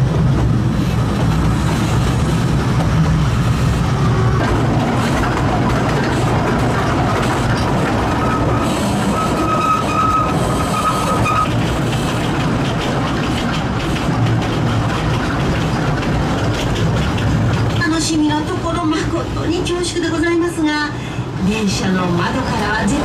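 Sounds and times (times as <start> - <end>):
rumble and clatter of train wheels: 0.0 - 23.0
high wheel squeal: 8.0 - 11.7.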